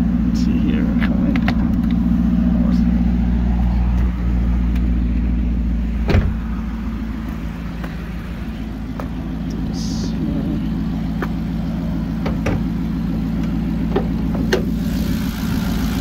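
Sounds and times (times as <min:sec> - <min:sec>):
car engine idling: 0:00.0 - 0:16.0
thump: 0:06.0 - 0:06.4.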